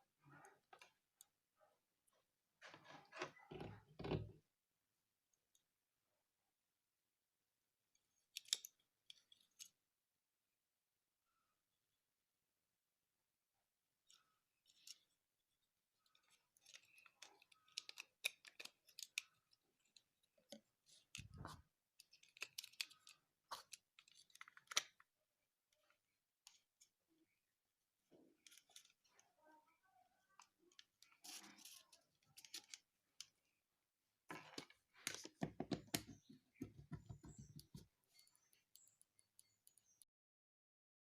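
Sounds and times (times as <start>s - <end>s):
small plastic parts clicking: 8.0s - 9.8s, 16.0s - 25.1s, 28.2s - 29.2s.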